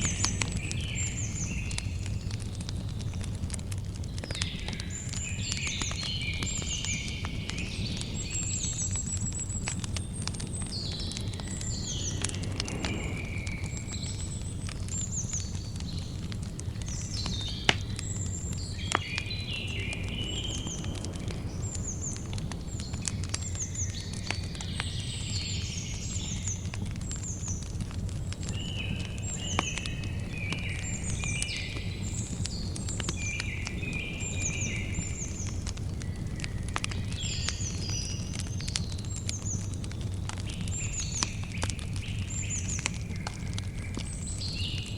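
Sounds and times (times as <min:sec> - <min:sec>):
campfire crackling and popping: 0:00.0 - 0:44.9
birds chirping: 0:04.1 - 0:27.4, 0:28.4 - 0:44.9
low rumble: 0:10.4 - 0:16.1, 0:18.4 - 0:24.4.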